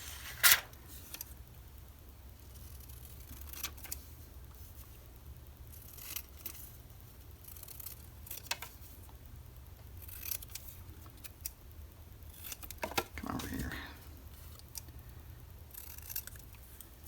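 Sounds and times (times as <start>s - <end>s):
low steady hum: 0.0s - 17.0s
scissors cutting paper: 15.7s - 16.6s.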